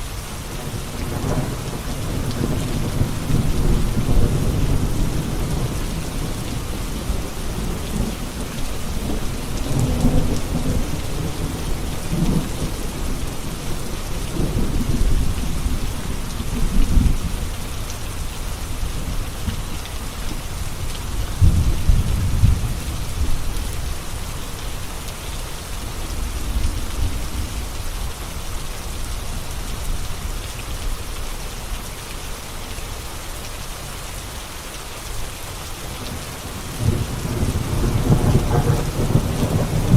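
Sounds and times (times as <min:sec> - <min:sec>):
heavy rain: 0:00.0 - 0:39.9
rolling thunder: 0:21.1 - 0:24.0, 0:36.5 - 0:39.9.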